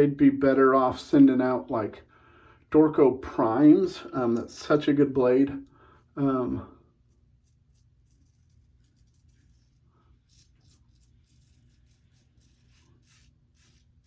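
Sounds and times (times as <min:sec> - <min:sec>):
razor scraping stubble: 0:07.0 - 0:14.0.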